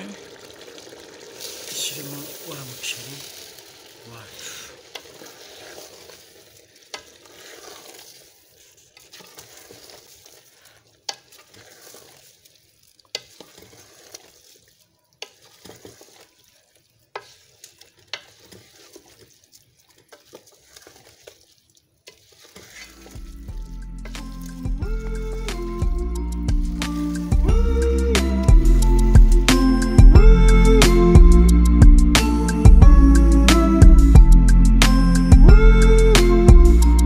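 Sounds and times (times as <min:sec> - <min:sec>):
liquid sizzling: 0:00.0 - 0:31.2
spoon stirring in pot: 0:04.4 - 0:27.5.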